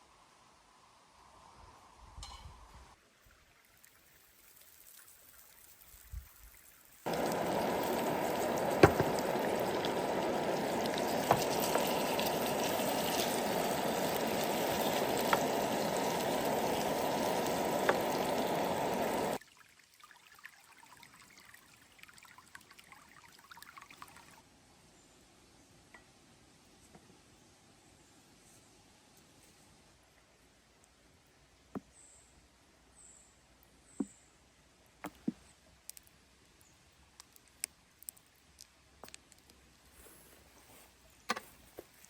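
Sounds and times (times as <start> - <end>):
flowing water: 6.3 - 24.4.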